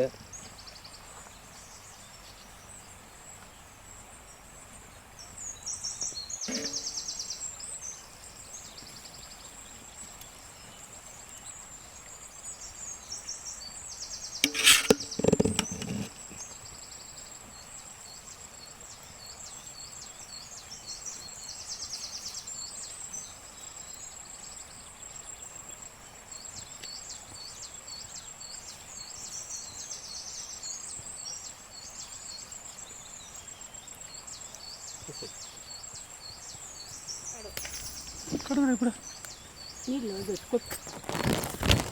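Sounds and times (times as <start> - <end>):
bird or insect chirps: 0.0 - 41.9
sharp knock: 14.4 - 16.1.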